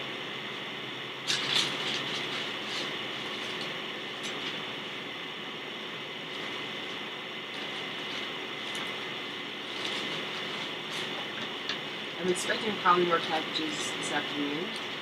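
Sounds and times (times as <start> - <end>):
plastic crinkling rustles: 1.3 - 4.6, 9.6 - 11.4.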